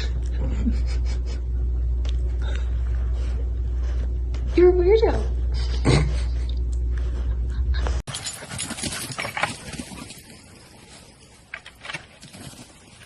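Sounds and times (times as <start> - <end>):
steady low hum: 0.0 - 13.0
clicks and rustles: 8.1 - 13.0.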